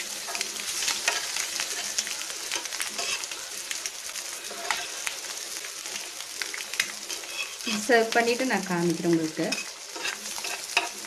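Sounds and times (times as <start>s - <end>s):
spatula scraping a pan: 0.0s - 3.4s, 4.2s - 5.2s, 7.1s - 7.9s, 9.4s - 11.0s
eggs sizzling in oil: 0.0s - 11.0s.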